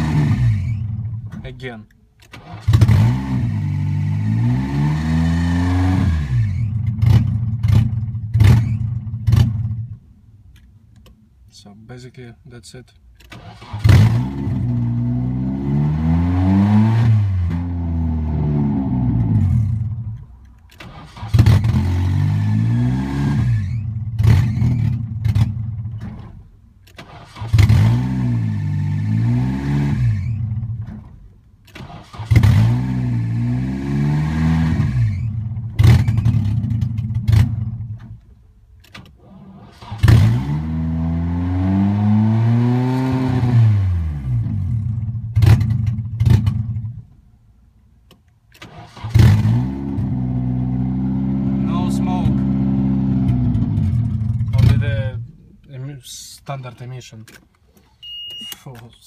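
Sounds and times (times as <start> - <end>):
car engine starting and revving: 0.0 - 10.0, 13.2 - 47.2, 48.5 - 55.7.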